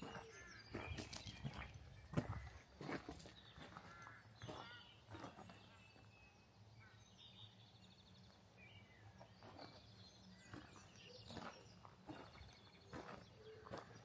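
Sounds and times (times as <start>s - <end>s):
footsteps crunching in snow: 0.0s - 5.6s, 9.4s - 14.0s
small birds chirping: 0.0s - 14.0s.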